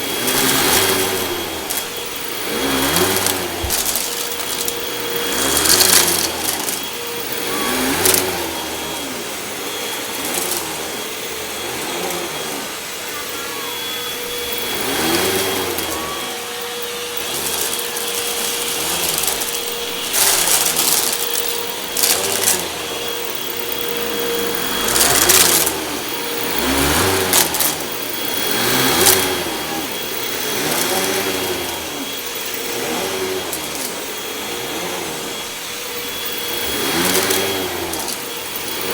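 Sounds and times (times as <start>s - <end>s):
debris crackling in vacuum: 0.0s - 8.6s, 14.4s - 34.0s
vacuum cleaner whining on carpet: 0.0s - 38.9s.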